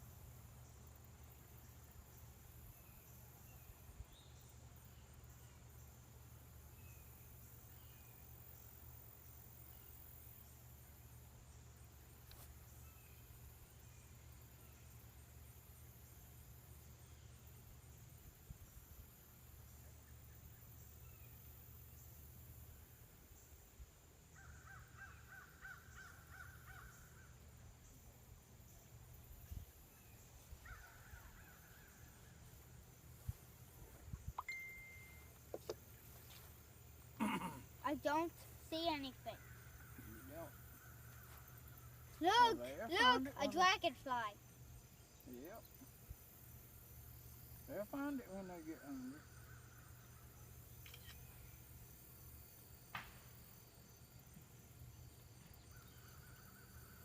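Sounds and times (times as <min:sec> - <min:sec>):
insect buzzing: 0:00.0 - 0:57.0
distant crow cawing: 0:24.4 - 0:27.4, 0:30.6 - 0:32.3, 0:39.4 - 0:42.2
short thin high tone: 0:34.4 - 0:35.4.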